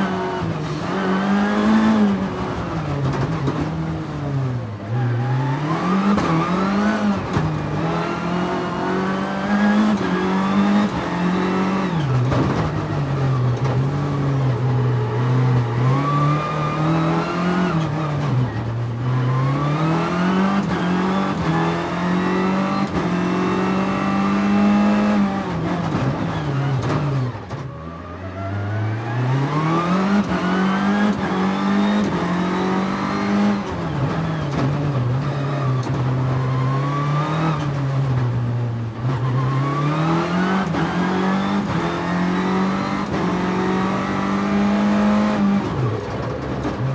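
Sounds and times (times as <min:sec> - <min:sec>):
car engine revving: 0:00.0 - 0:27.6, 0:28.6 - 0:46.9.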